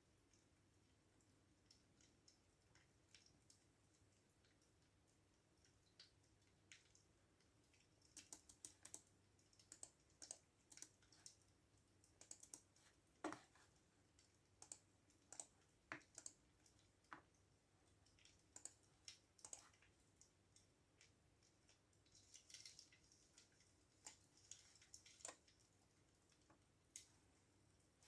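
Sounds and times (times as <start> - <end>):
keyboard typing: 8.0 - 11.4, 12.0 - 13.5, 14.6 - 16.4, 18.4 - 19.8.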